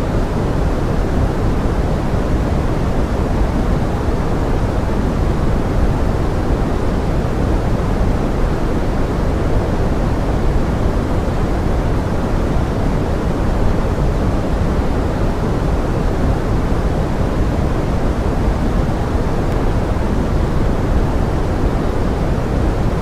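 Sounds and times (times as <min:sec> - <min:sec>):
steady pink noise: 0:00.0 - 0:23.0.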